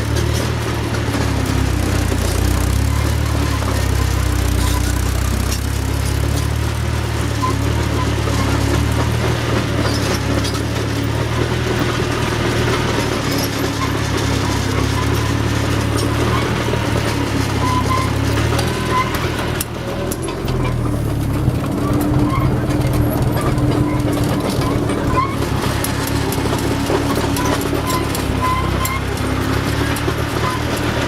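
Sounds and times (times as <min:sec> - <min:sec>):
loader engine running: 0:00.0 - 0:31.0.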